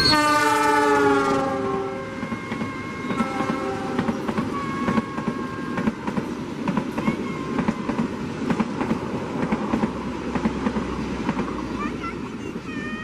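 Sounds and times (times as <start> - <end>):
train horn blast: 0.0 - 6.1
train rumble: 0.0 - 13.0
train wheels clattering over rail joints: 2.2 - 11.8.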